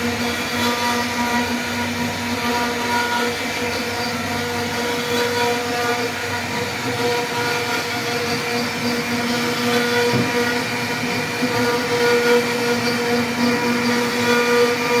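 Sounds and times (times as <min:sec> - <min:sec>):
rough wood cutting noise: 0:00.0 - 0:15.0
router spindle whine: 0:00.0 - 0:15.0.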